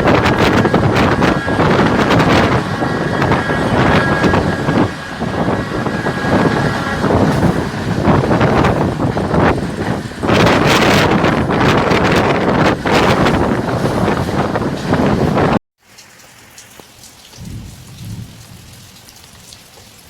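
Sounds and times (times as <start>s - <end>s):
moving train running noise: 0.0s - 15.6s
wind buffeting microphone: 0.0s - 15.6s, 17.4s - 19.0s.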